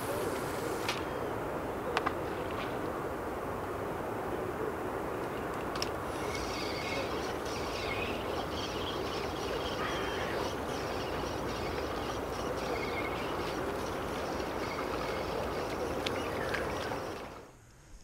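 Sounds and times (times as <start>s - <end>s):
small birds chirping: 6.1s - 17.4s.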